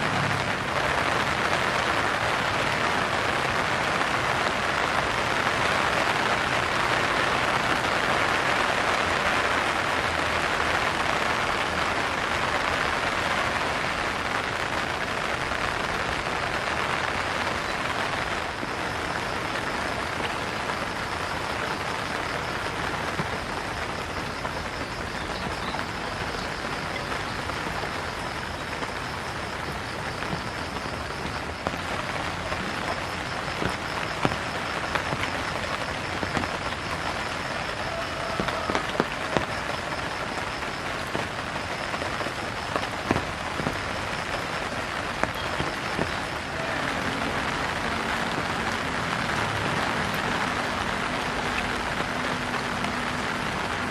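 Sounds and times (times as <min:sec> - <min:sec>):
rain falling on roofs: 0:00.0 - 0:53.9
water drips and splashes: 0:00.0 - 0:53.9
high pulsing insect chirr: 0:17.1 - 0:42.8.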